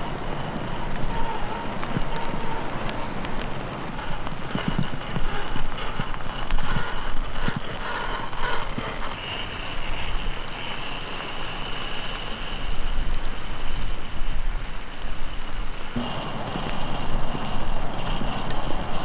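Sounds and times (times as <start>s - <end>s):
high motor whine: 15.9s - 19.0s.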